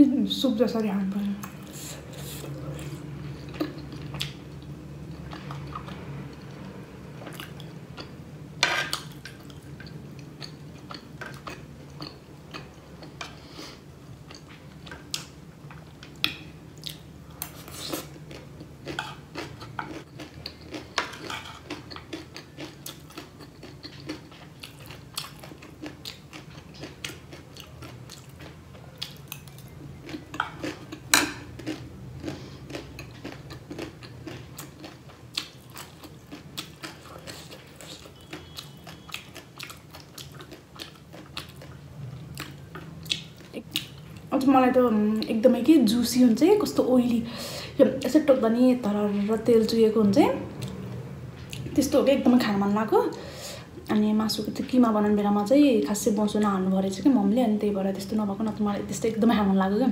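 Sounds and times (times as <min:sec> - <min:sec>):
crunchy snack chewing: 0:16.8 - 0:41.8.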